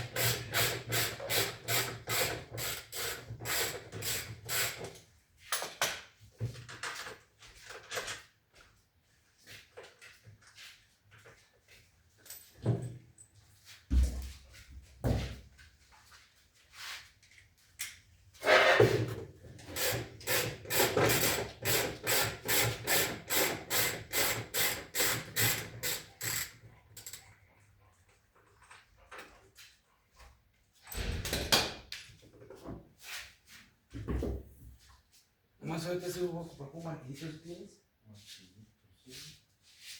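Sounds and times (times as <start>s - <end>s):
ratchet wrench clicking: 19.7s - 27.2s.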